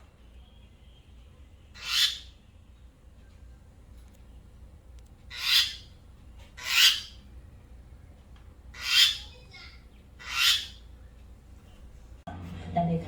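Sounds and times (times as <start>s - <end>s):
mynah bird squawks: 1.8s - 2.4s, 5.3s - 5.9s, 6.6s - 7.2s, 8.7s - 10.9s.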